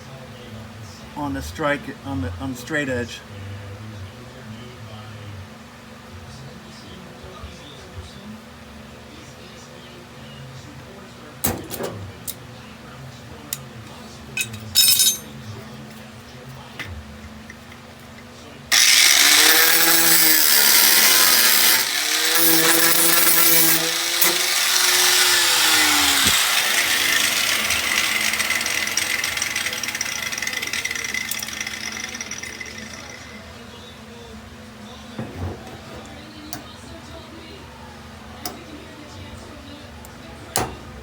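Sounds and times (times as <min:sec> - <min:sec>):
metal tools clinking: 0:14.4 - 0:15.5, 0:27.8 - 0:33.3
power tool on steel panel: 0:18.7 - 0:33.5.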